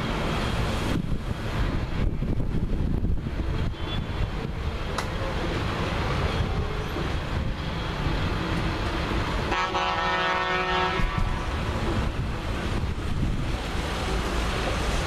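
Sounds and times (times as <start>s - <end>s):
wind noise on microphone: 0.0s - 9.5s, 10.5s - 15.0s
vehicle horn blast: 9.5s - 11.4s.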